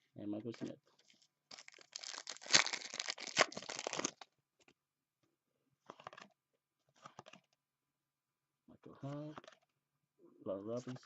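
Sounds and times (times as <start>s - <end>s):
foil pack tearing and crinkling: 1.5s - 4.2s.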